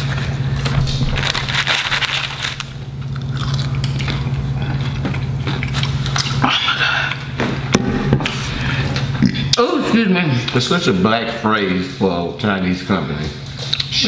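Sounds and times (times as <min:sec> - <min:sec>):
crunching and chewing fried food: 0:00.0 - 0:07.2
steady low hum: 0:00.0 - 0:14.0.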